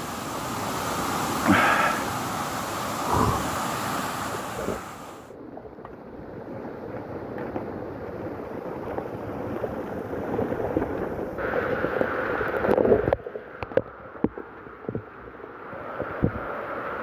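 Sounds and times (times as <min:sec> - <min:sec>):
heavy rain: 0:00.0 - 0:05.4, 0:10.3 - 0:13.2
rushing runoff water: 0:00.0 - 0:17.0.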